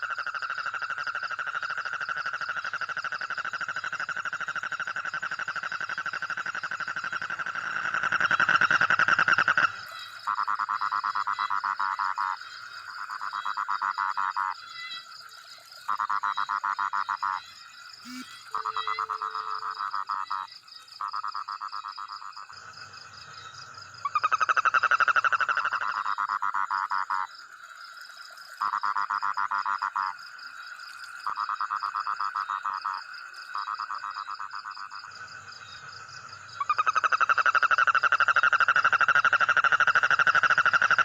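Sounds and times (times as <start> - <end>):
frogs trilling: 0.0 - 41.0
high-pitched pulsing chorus: 18.0 - 19.6.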